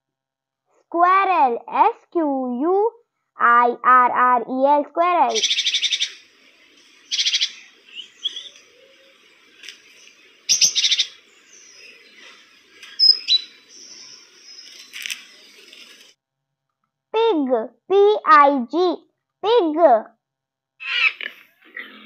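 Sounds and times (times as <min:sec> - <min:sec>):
squirrel chattering: 0:05.3 - 0:06.2, 0:07.1 - 0:08.6, 0:10.5 - 0:11.2, 0:20.8 - 0:22.0
faint bird chirps: 0:05.3 - 0:16.1.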